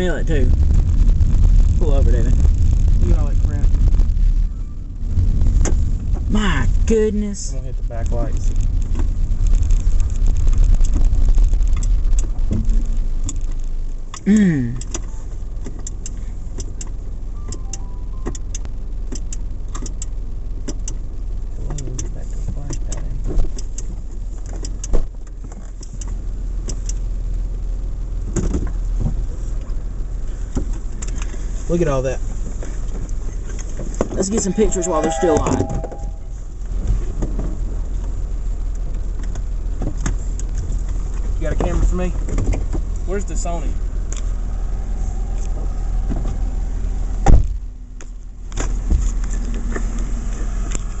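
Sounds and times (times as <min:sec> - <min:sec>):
car cabin rumble: 0:00.0 - 0:51.0
sharp thump: 0:47.2 - 0:47.6.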